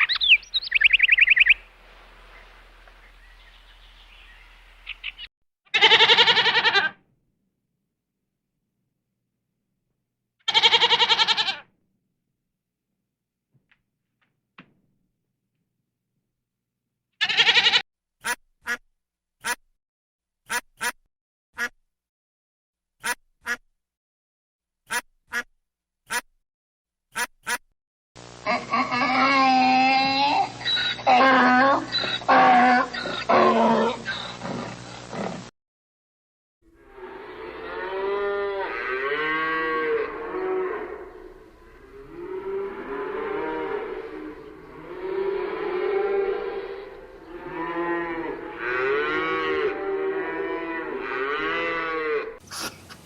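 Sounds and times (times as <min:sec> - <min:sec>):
duck quacking: 0:17.3 - 0:18.8, 0:19.4 - 0:19.6, 0:20.5 - 0:21.0, 0:21.6 - 0:21.8, 0:23.0 - 0:23.6, 0:24.9 - 0:25.5, 0:26.1 - 0:26.3, 0:27.1 - 0:27.6, 0:52.4 - 0:53.0
cattle mooing: 0:36.8 - 0:52.8.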